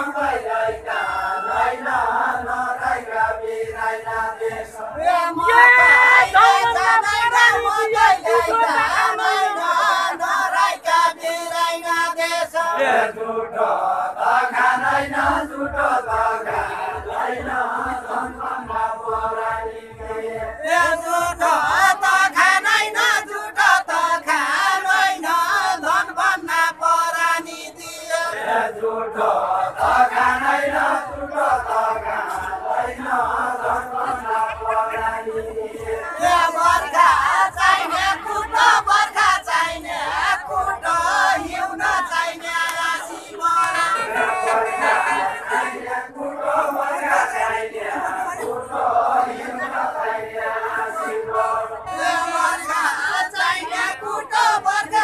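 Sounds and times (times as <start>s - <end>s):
low regular beat: 0.0s - 10.0s, 14.4s - 24.8s, 29.2s - 43.9s
men singing together: 0.0s - 55.0s.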